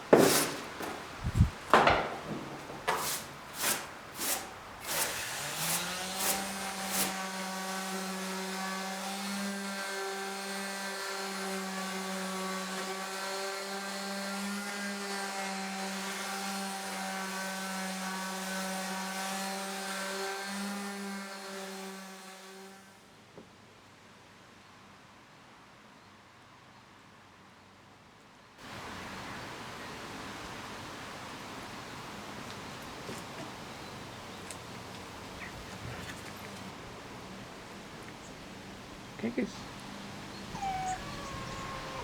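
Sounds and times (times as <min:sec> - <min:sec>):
short scraping strokes: 0:00.0 - 0:01.5, 0:02.3 - 0:07.2.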